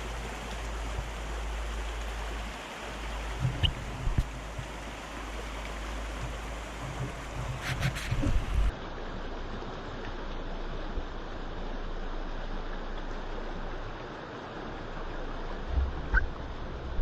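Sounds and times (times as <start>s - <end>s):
river rushing: 0.0s - 17.0s
low thumps: 15.6s - 17.0s.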